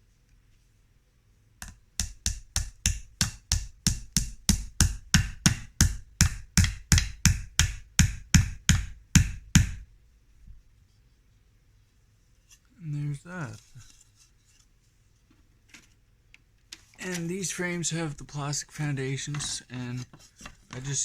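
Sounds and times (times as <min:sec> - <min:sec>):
hammer driving a nail into wood: 0:01.6 - 0:09.8.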